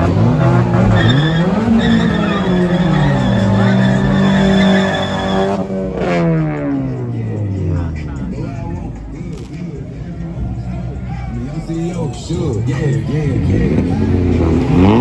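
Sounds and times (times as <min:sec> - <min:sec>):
tyres squealing: 0:00.0 - 0:05.9
car engine revving: 0:00.0 - 0:07.2, 0:12.7 - 0:15.0.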